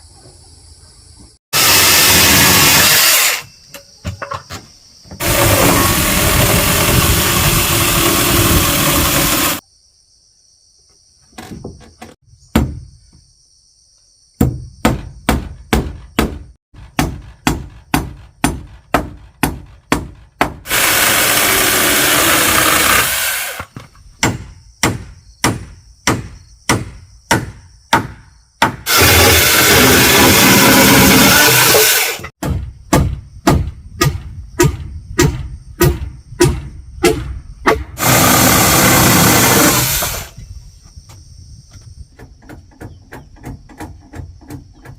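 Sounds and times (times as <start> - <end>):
power tool running: 1.6 - 3.4, 5.2 - 9.6, 20.7 - 23.6, 28.9 - 32.3, 38.0 - 40.3
sharp blows on wood: 14.4 - 40.3.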